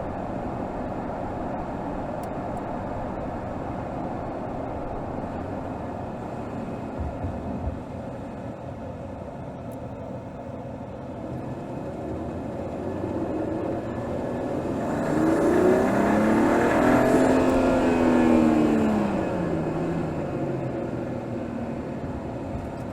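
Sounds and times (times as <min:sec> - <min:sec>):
car engine revving: 0:11.3 - 0:20.5.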